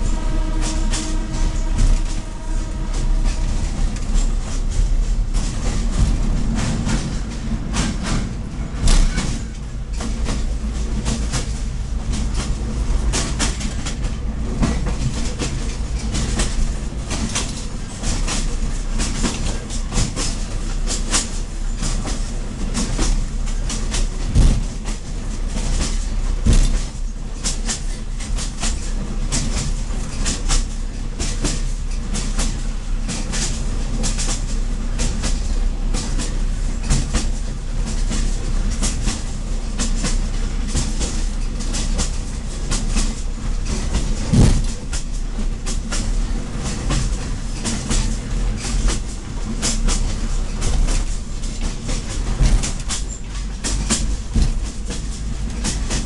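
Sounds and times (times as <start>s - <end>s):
diesel railcar engine drone: 0.0s - 56.0s
wheels clattering over rail joints: 0.0s - 56.0s
heavy thump: 4.7s - 10.5s, 44.0s - 45.1s, 52.4s - 53.0s.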